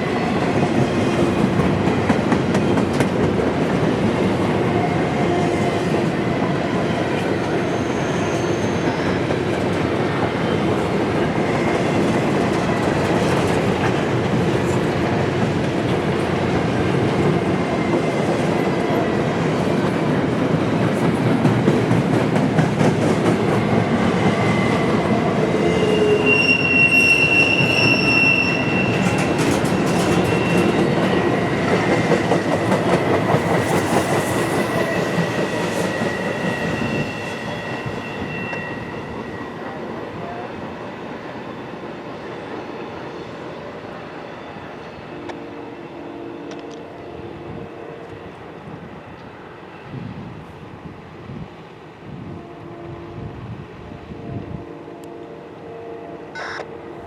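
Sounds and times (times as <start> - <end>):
train wheels clicking and rumbling: 0.0 - 39.5
high-pitched wheel squeal: 7.4 - 9.2, 25.6 - 30.9, 34.6 - 39.8.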